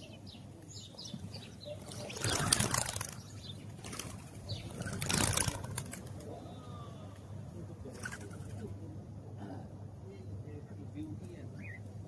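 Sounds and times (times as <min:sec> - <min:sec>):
sparrows chirping: 0:00.0 - 0:08.9, 0:10.2 - 0:12.0
wings flapping: 0:01.8 - 0:06.4, 0:07.9 - 0:08.7.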